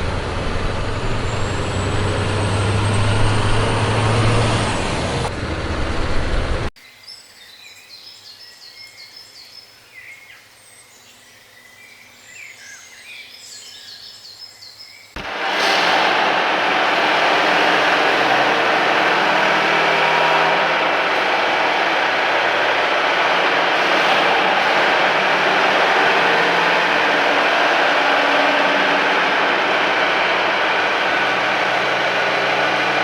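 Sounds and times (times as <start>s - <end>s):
loud vehicle motor: 0.0s - 6.8s, 15.2s - 33.0s.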